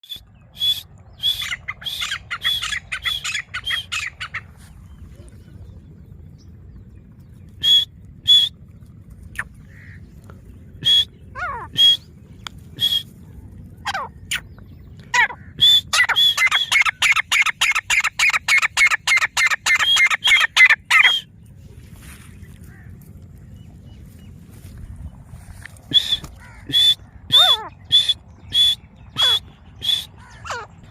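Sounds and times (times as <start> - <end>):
francolin calling: 0.0 - 5.6, 7.4 - 8.6, 9.3 - 13.2, 13.8 - 21.4, 25.4 - 30.9.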